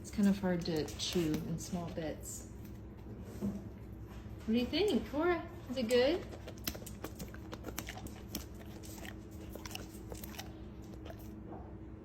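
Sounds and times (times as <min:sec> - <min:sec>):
dog chewing and licking: 0:05.8 - 0:11.5.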